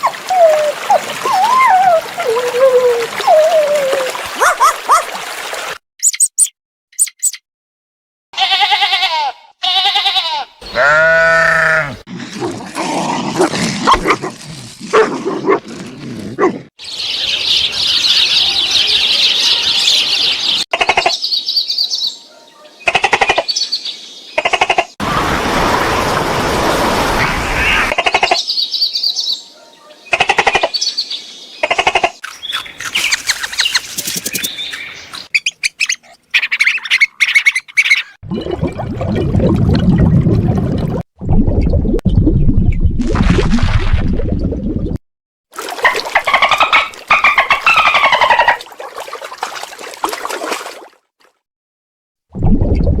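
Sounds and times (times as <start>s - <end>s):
animal sounds: 8.4s - 16.6s, 45.7s - 49.7s
birds chirping: 10.6s - 12.5s, 16.8s - 24.4s, 26.9s - 38.2s, 45.8s - 48.7s.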